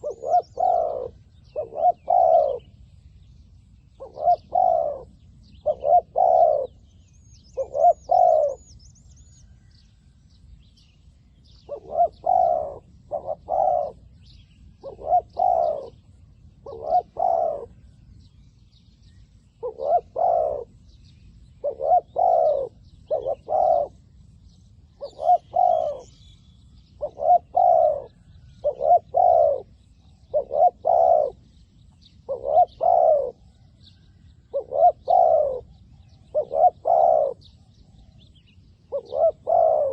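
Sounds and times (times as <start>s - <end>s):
dove cooing: 0.0s - 2.8s, 4.0s - 8.8s, 11.6s - 18.0s, 19.6s - 24.2s, 24.9s - 26.2s, 26.9s - 31.5s, 32.2s - 33.6s, 34.5s - 39.9s
small birds chirping: 0.0s - 39.9s.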